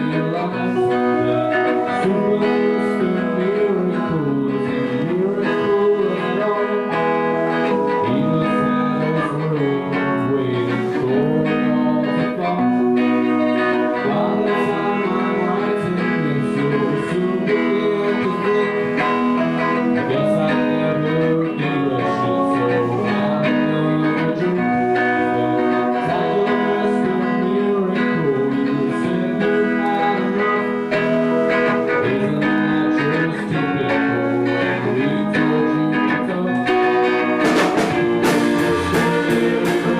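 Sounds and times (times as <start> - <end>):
live band playing guitar song: 0.0 - 39.9.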